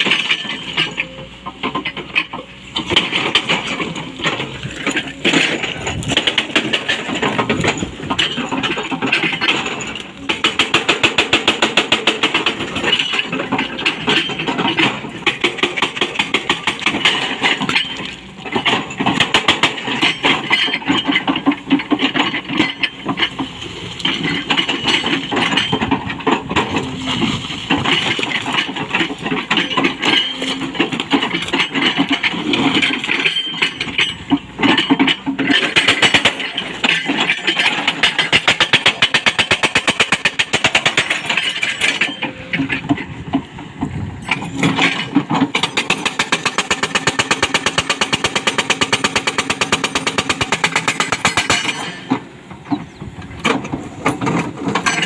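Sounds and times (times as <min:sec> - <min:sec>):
excavator engine running: 0:00.0 - 0:55.0
hydraulic breaker hammering rock: 0:00.0 - 0:55.0.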